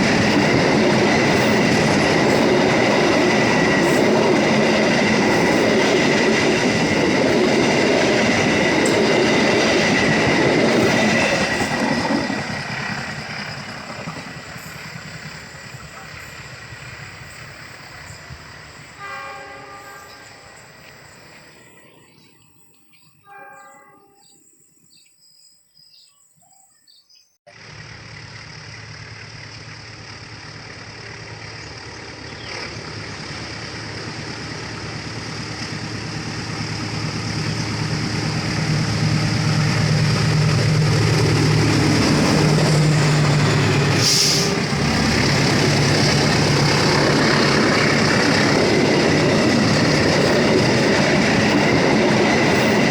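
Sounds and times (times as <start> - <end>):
train wheels rattling on rails: 0.0 - 22.4, 27.5 - 52.9
train horn blasts: 19.0 - 20.7, 23.2 - 24.4
vehicle engine running: 27.5 - 34.6.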